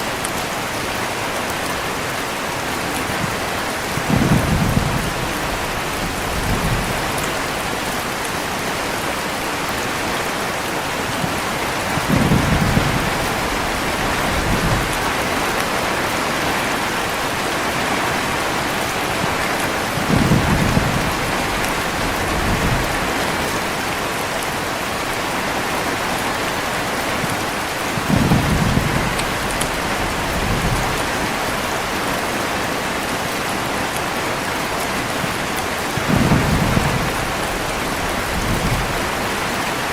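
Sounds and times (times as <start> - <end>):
heavy rain falling: 0.0 - 39.9
low thunder rumbling: 3.0 - 8.6, 11.2 - 24.0, 27.9 - 32.3, 35.2 - 39.9.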